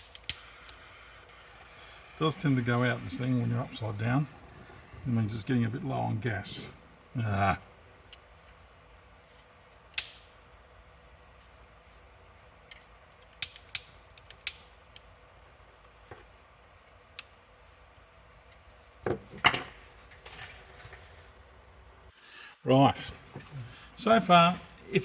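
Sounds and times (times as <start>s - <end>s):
small tools clicking and tapping: 0.0s - 0.8s, 12.6s - 15.1s.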